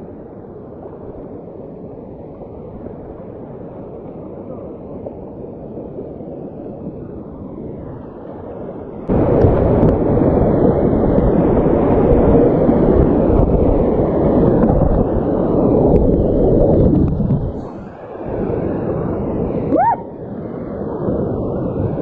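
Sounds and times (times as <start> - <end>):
rushing creek whitewater: 17.6 - 20.2.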